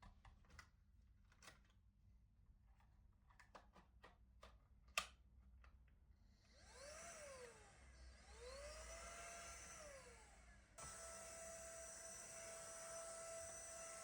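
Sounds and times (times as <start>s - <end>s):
vacuum cleaner motor running: 6.3s - 14.0s.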